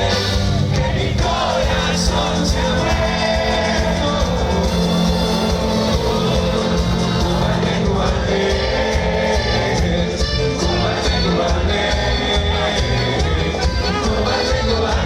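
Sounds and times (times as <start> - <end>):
cumbia band playing: 0.0 - 15.0
person singing: 0.0 - 15.0.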